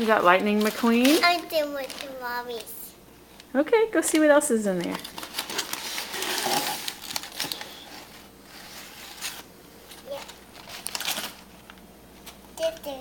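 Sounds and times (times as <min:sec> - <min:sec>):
packaging rustling and crinkling: 0:00.0 - 0:02.3, 0:04.9 - 0:12.4.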